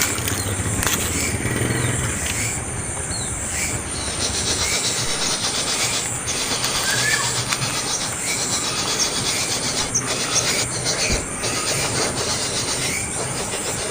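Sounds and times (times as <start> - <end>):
fledgling rasping begging calls: 0.0 - 13.9.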